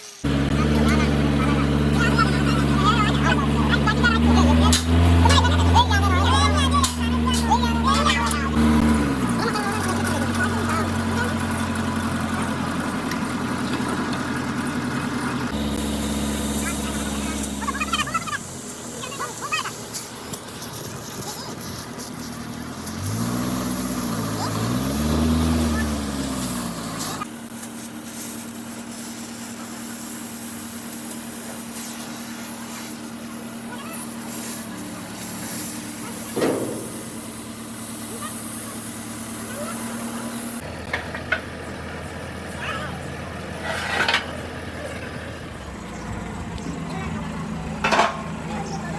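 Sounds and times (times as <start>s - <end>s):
engine idling: 0.1s - 48.9s
steady machine hum: 0.2s - 19.7s, 32.0s - 41.0s, 41.6s - 48.9s.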